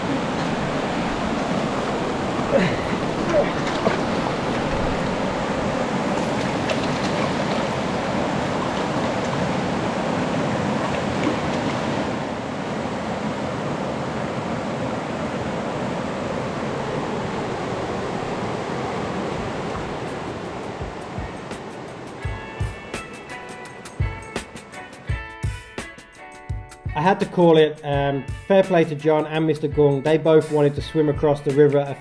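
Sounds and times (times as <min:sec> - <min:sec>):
river rushing: 0:00.0 - 0:25.2.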